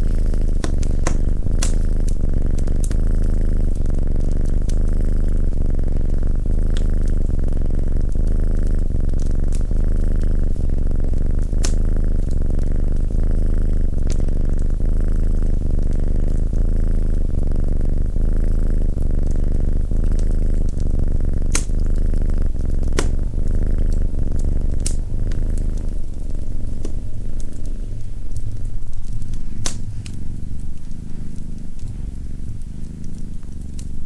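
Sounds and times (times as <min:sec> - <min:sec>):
cat purring: 0:00.0 - 0:34.0
wood fire crackling: 0:00.0 - 0:34.0.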